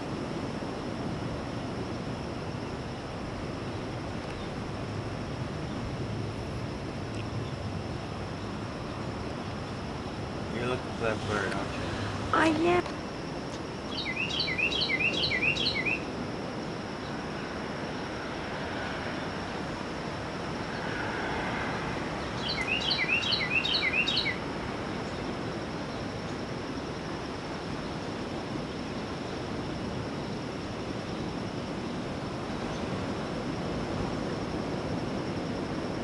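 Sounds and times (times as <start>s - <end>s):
steady background hiss: 0.0s - 36.0s
bird singing: 13.9s - 16.1s, 22.2s - 24.4s.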